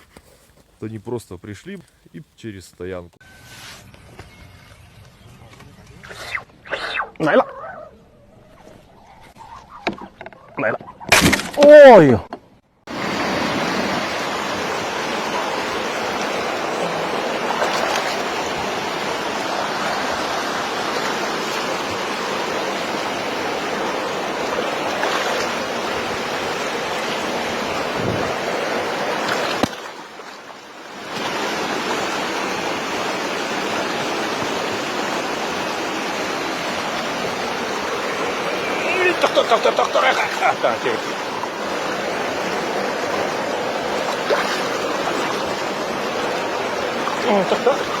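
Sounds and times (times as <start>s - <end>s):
flowing water rushing: 12.9s - 48.0s.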